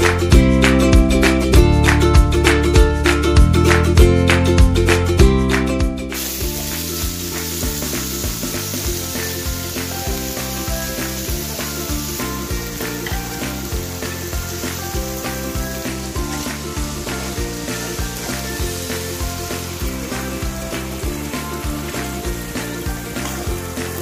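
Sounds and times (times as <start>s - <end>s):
background music with beat: 0.0s - 24.0s
chicken sizzling in a wok: 6.1s - 24.0s.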